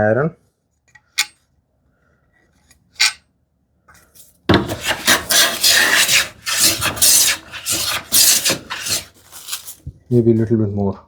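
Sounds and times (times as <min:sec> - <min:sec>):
hand plane shaving wood: 0:04.5 - 0:09.8.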